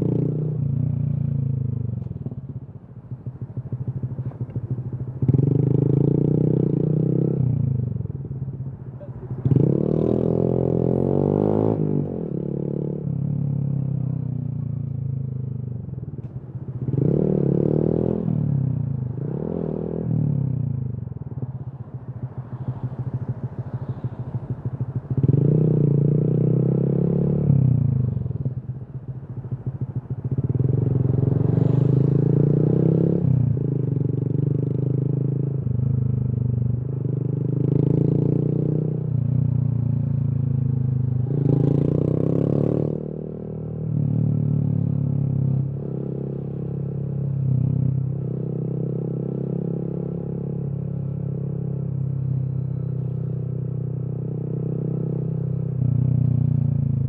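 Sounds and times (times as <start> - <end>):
motorcycle engine revving: 21.9 - 57.0.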